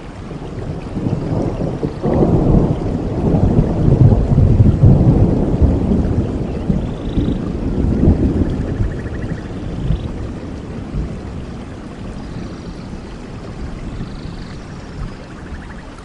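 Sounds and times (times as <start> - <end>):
steady rain: 0.0 - 16.0
thunder rumbling: 0.0 - 16.0.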